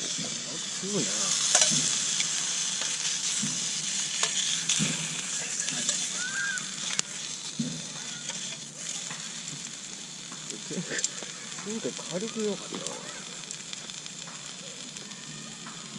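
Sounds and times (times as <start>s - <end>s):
food sizzling in frying pan: 0.0s - 15.9s.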